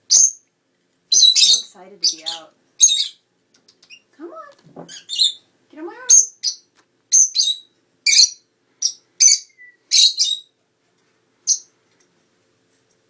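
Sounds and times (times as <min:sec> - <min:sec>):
lovebirds chirping: 0:01.1 - 0:10.6, 0:11.4 - 0:11.7.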